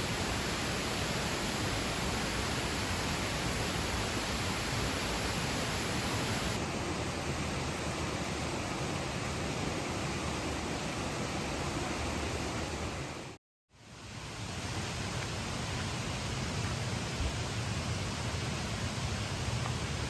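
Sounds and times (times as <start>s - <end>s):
steady rushing noise: 0.0s - 6.6s.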